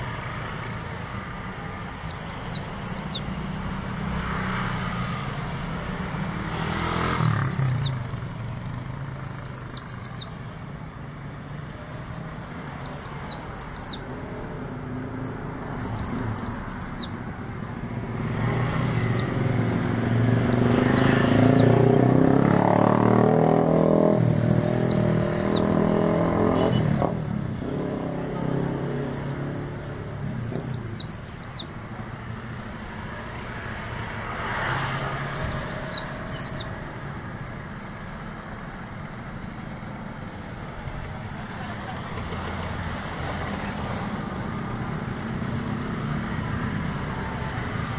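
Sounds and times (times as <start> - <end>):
vehicle engine: 0.0 - 10.7, 11.7 - 47.9
bird twittering: 0.6 - 3.8, 6.3 - 10.5, 11.6 - 27.1, 27.7 - 33.5, 34.3 - 37.0.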